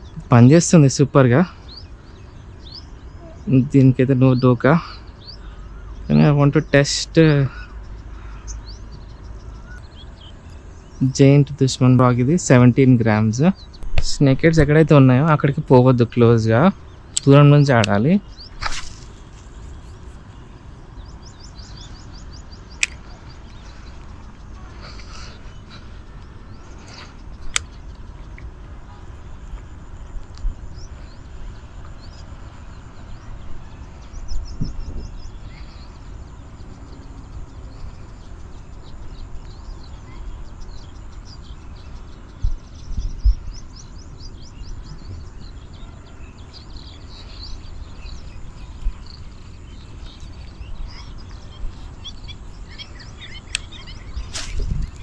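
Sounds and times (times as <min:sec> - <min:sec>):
small birds chirping: 0:00.0 - 0:55.0
wind rumble on microphone: 0:18.2 - 0:55.0.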